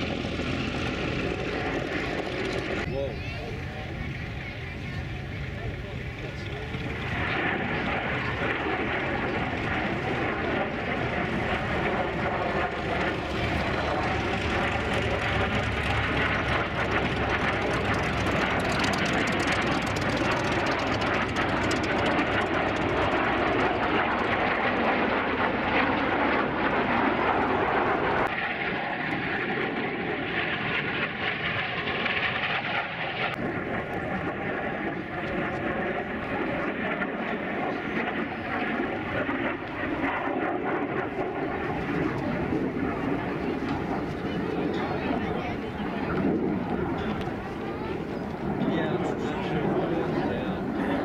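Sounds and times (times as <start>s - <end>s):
jet engines roaring: 0.0s - 51.0s.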